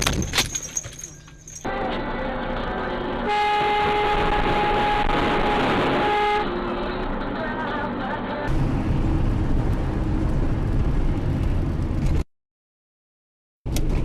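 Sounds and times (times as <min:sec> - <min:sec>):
traffic noise: 0:00.0 - 0:12.2
low road rumble: 0:00.0 - 0:12.3, 0:13.7 - 0:14.0
car horn blast: 0:03.2 - 0:06.6.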